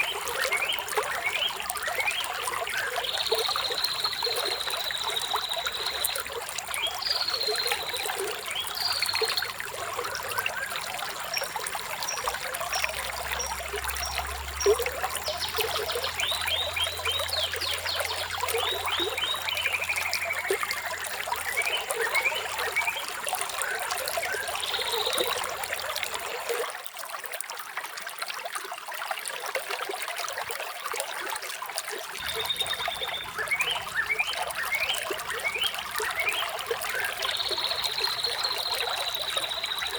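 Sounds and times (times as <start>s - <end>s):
songbirds chirping: 0.0s - 26.5s, 32.2s - 39.9s
water trickling: 0.0s - 39.9s.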